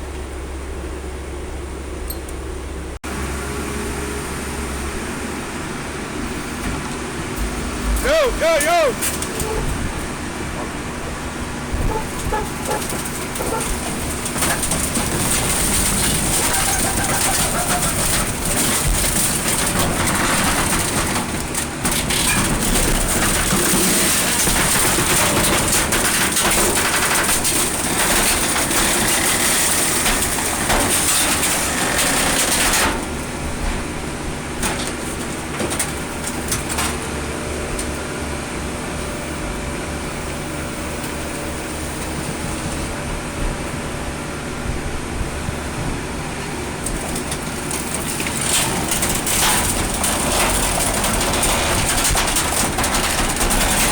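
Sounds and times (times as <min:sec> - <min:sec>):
metal crunching: 0:04.5 - 0:53.9
metal clanks: 0:11.7 - 0:33.8, 0:46.9 - 0:53.9.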